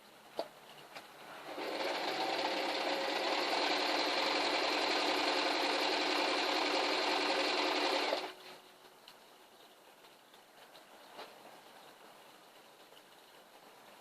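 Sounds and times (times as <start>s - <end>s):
electric sewing machine running: 1.4s - 8.4s.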